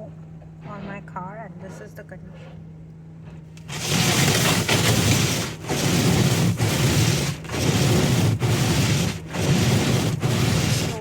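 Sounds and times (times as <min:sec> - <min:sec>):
scraping ice off car: 0:03.3 - 0:11.0.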